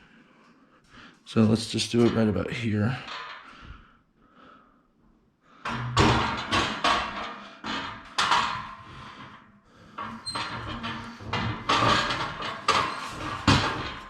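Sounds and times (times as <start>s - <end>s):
metal scaffolding knocking: 5.7s - 8.7s.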